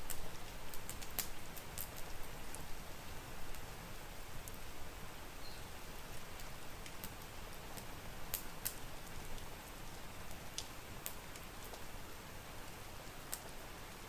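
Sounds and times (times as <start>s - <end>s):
wood fire crackling and popping: 0.0s - 4.7s, 5.9s - 14.0s
steady rain hiss: 0.0s - 14.0s.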